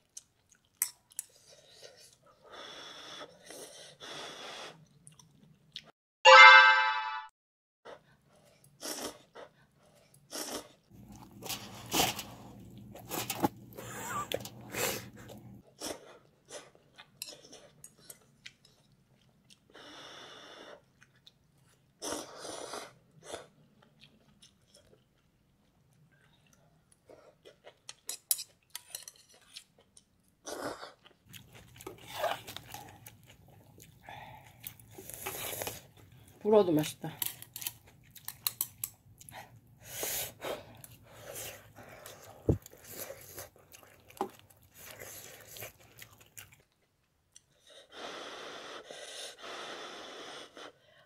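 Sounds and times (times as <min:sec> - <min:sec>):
person chewing: 0:04.7 - 0:05.9, 0:10.1 - 0:19.8, 0:20.7 - 0:36.4, 0:37.2 - 0:39.6, 0:40.4 - 0:47.6
person slurping noodles: 0:10.3 - 0:10.8.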